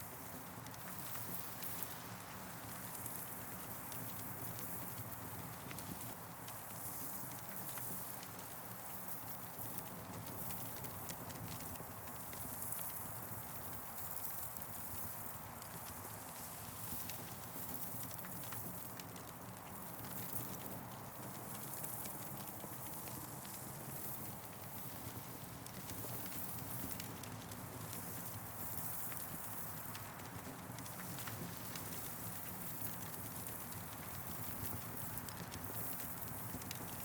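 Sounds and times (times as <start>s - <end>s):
campfire crackling and popping: 15.6s - 37.0s.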